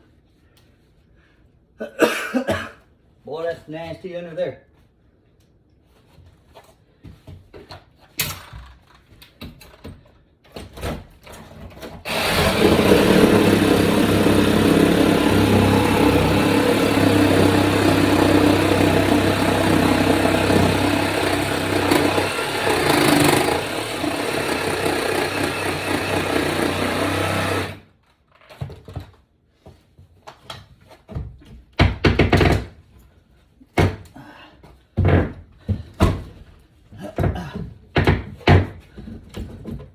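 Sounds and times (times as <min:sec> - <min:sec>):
demolition knocks and thumps: 0:11.4 - 0:27.8
power tool motor running: 0:12.1 - 0:27.8.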